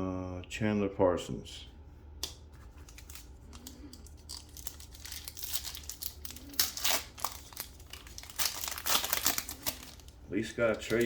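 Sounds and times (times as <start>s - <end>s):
plastic wrapper tearing and crinkling: 2.8s - 11.0s.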